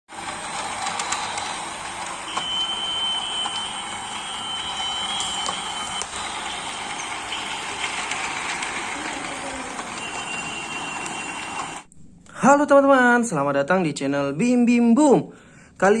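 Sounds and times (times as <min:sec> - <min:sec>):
toy train whirring and clicking: 0:00.1 - 0:11.9
thin high whine: 0:00.6 - 0:11.9.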